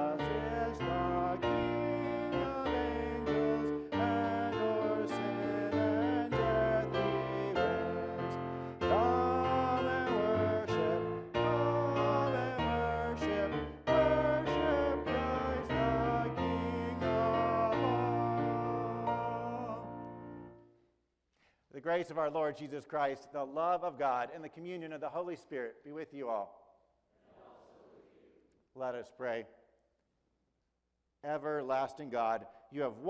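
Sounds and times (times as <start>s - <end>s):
sung hymn melody: 0.0s - 20.6s.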